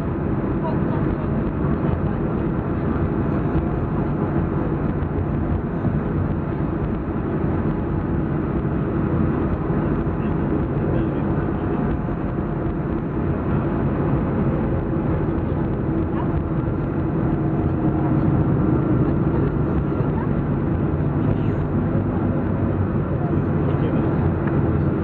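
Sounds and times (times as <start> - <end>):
aircraft cabin rumble: 0.0 - 25.0.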